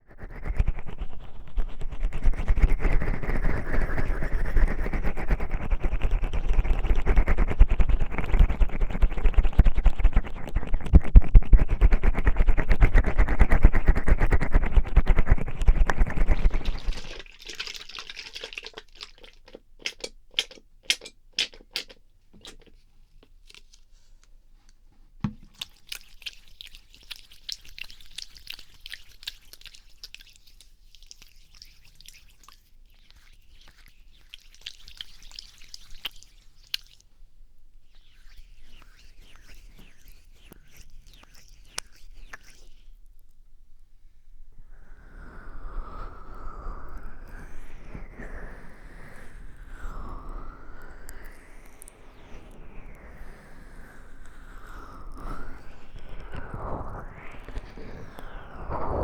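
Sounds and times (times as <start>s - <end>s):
hands rubbing microphone: 0.3s - 22.9s
sticky clicks: 19.4s - 22.7s
soft thump: 25.2s - 25.5s.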